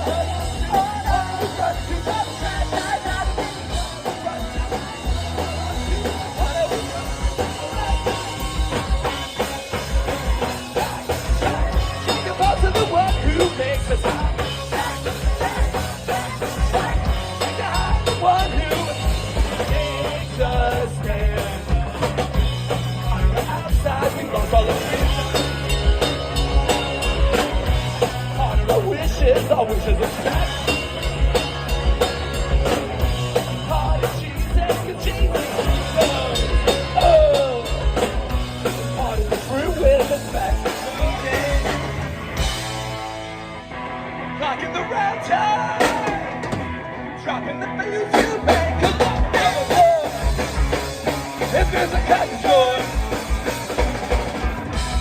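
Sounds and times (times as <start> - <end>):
drum kit beat: 0.0 - 43.6, 45.6 - 46.8, 47.8 - 55.0
electric guitars: 0.0 - 55.0
live rock band playing: 0.0 - 55.0.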